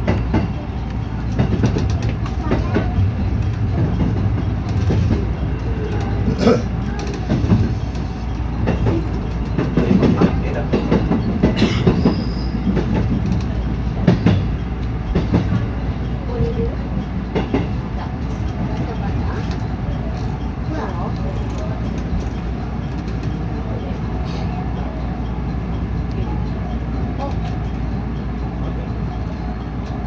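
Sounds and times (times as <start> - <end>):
train wheels clattering over rail joints: 0.0 - 23.8.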